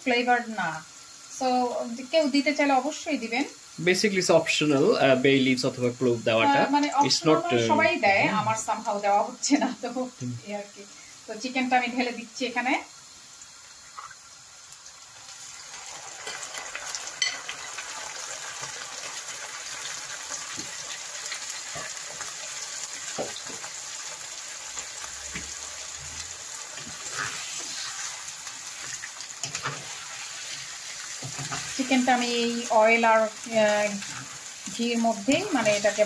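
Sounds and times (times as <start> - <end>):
chicken sizzling in oil: 0.0 - 36.0
metal spoon scraping pan: 26.8 - 28.2, 29.4 - 32.1.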